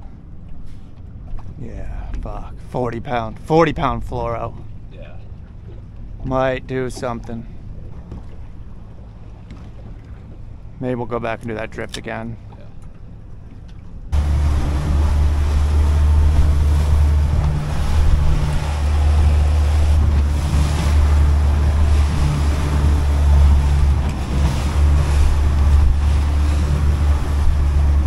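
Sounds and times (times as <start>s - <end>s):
outboard motor running: 0.0s - 28.0s
water rushing past hull: 0.0s - 28.0s
wind buffeting microphone: 14.1s - 28.0s.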